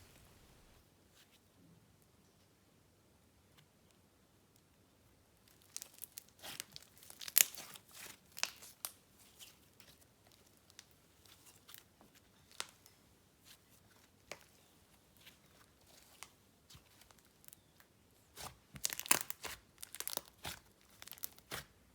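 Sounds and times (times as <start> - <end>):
slime squished by hand: 5.5 - 12.8, 18.3 - 21.8.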